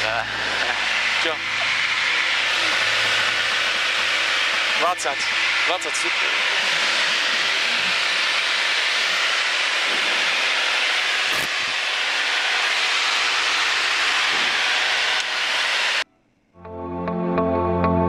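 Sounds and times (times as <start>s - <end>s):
aircraft cabin engine and airflow: 0.0s - 16.1s
music: 16.6s - 18.0s.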